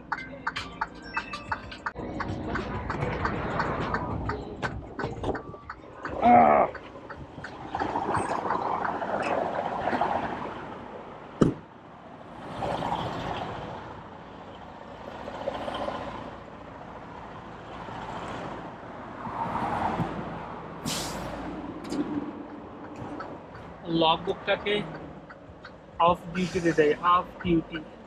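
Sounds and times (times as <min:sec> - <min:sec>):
roadway traffic: 0:00.0 - 0:28.0
truck running: 0:00.0 - 0:28.0
short loud hiss: 0:20.8 - 0:21.3.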